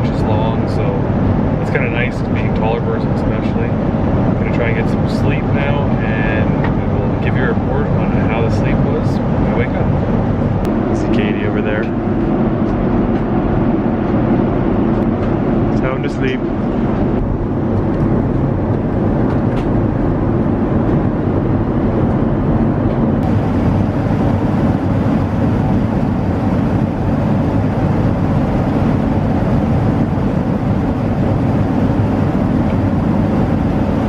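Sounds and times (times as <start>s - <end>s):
airliner cabin noise: 0.0s - 34.0s.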